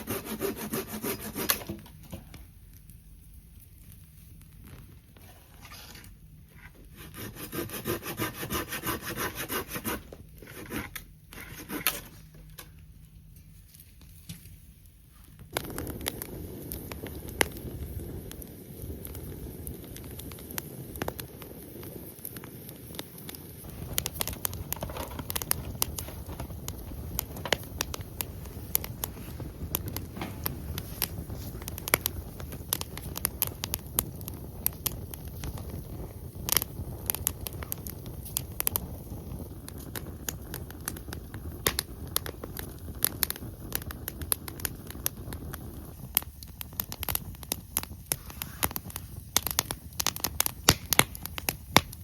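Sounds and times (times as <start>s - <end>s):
hand saw cutting wood: 0.0s - 1.8s, 7.0s - 12.0s
campfire crackling and popping: 0.0s - 5.3s, 6.0s - 52.0s.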